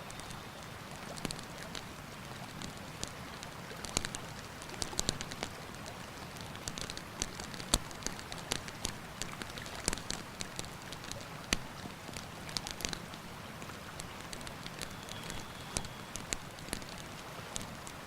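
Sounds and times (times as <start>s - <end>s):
campfire crackling and popping: 0.1s - 18.0s.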